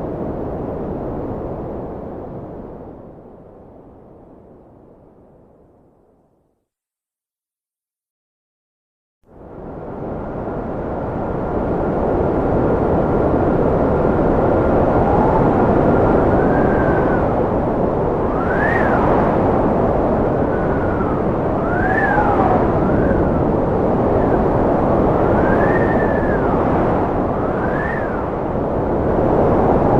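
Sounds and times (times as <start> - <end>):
wind blowing hard: 0.0 - 3.8, 9.4 - 29.9
wind whistling: 9.6 - 29.9.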